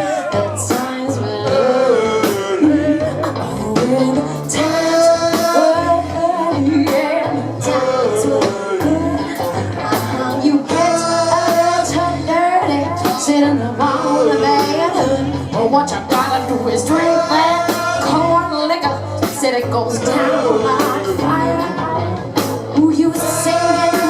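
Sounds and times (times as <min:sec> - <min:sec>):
live soul-rock band: 0:00.0 - 0:24.0
person singing: 0:00.0 - 0:24.0
drum hits: 0:13.1 - 0:21.5.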